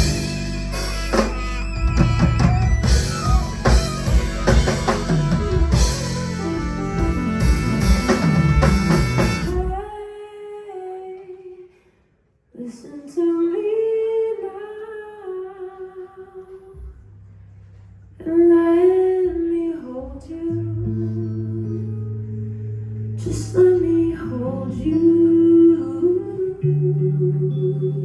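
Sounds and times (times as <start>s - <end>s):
live band music: 0.0s - 9.9s.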